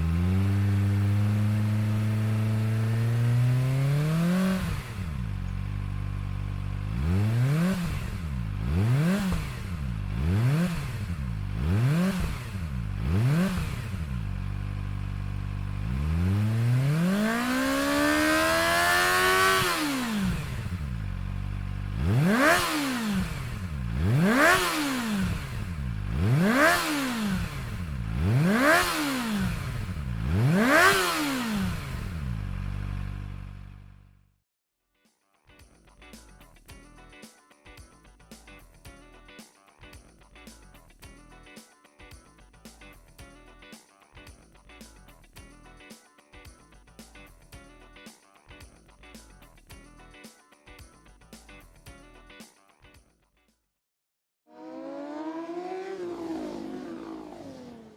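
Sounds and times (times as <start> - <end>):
motorcycle engine revving: 0.0 - 34.3, 54.5 - 57.9.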